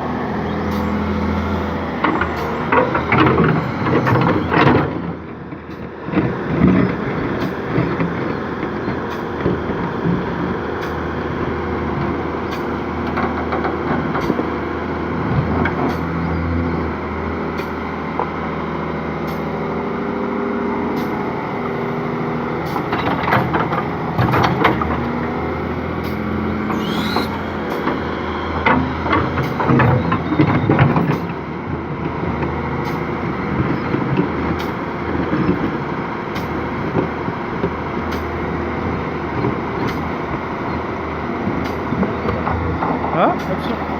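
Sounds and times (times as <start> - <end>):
rising and falling whine: 0.0 - 5.5, 24.4 - 30.6
excavator diesel engine running: 0.0 - 43.9.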